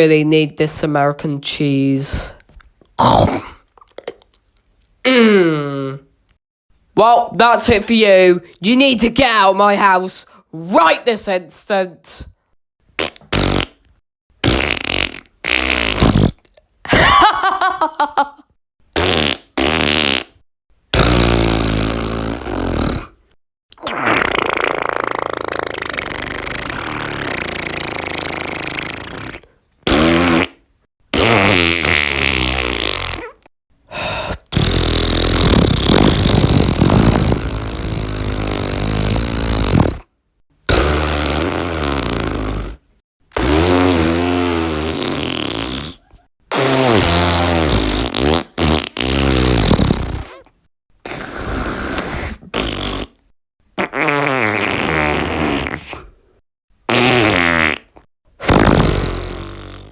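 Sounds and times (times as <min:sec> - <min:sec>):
toy playing fart sound effects: 0:13.0 - 0:13.8, 0:14.4 - 0:16.4, 0:18.9 - 0:23.2, 0:23.8 - 0:40.1, 0:40.7 - 0:50.5, 0:51.1 - 0:56.0, 0:56.9 - 0:59.9.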